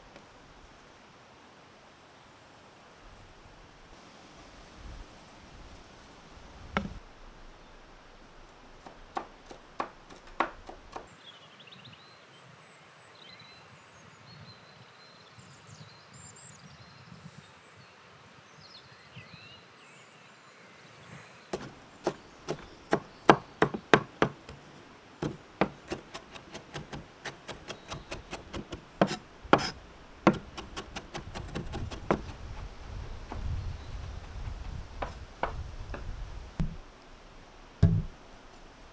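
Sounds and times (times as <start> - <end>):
chopping strokes: 8.0 - 11.1, 21.6 - 38.9
single knocks: 8.1 - 11.1, 21.6 - 38.9.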